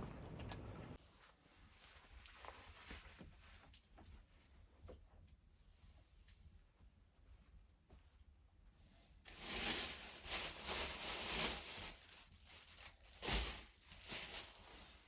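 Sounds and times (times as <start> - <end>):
rustling and scraping handling noise: 1.0 - 4.7, 9.3 - 15.0.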